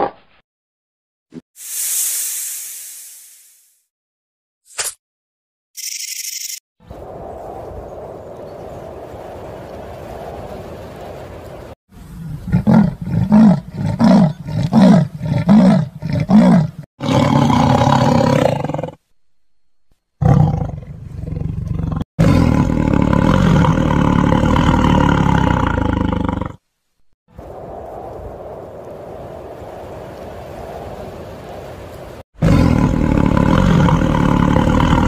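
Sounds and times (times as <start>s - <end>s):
large animal roaring and grunting: 12.4s - 19.0s, 20.2s - 26.6s, 32.4s - 35.0s.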